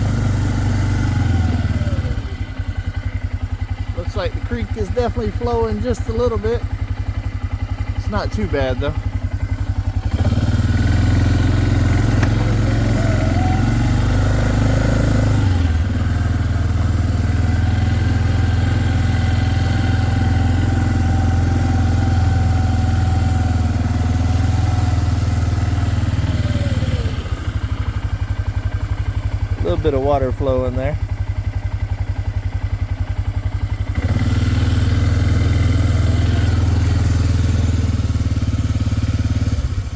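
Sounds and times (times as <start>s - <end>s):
small vehicle engine whining: 0.0s - 39.9s.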